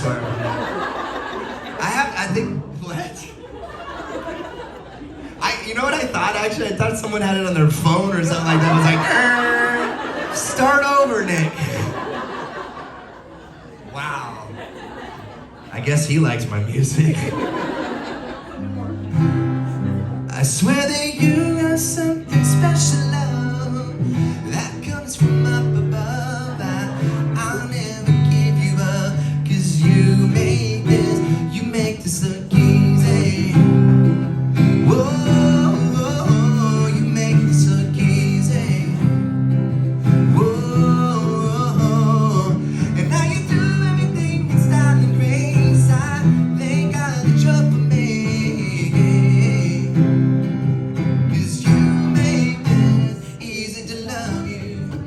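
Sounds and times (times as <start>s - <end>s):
man singing: 5.4s - 12.0s, 19.7s - 55.0s
acoustic guitar strumming: 5.8s - 12.6s, 15.8s - 55.0s.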